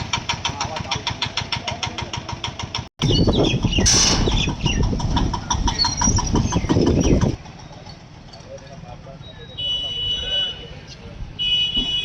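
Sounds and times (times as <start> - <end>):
harvester engine knocking: 0.0 - 8.8.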